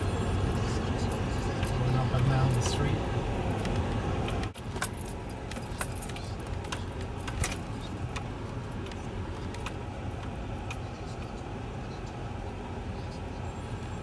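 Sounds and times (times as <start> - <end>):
vehicle engine and tyre rumble: 0.0 - 14.0
light clicks and rattles: 3.5 - 12.1.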